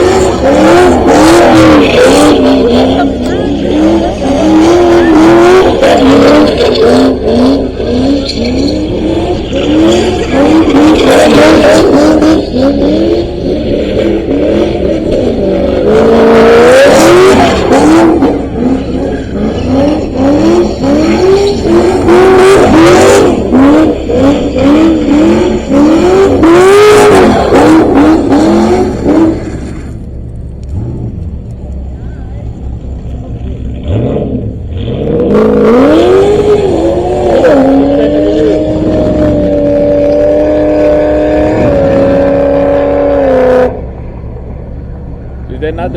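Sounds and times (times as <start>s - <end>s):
tyres squealing: 0.0s - 13.5s
car engine revving: 0.0s - 45.9s.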